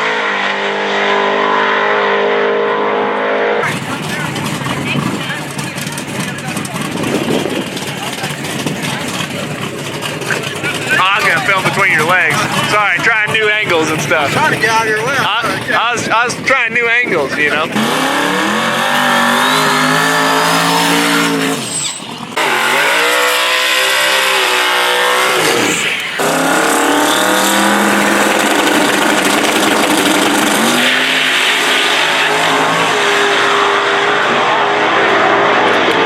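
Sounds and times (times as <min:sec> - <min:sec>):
tire squeal: 0:00.0 - 0:06.0, 0:17.8 - 0:36.0
racing car engine revving: 0:00.0 - 0:36.0.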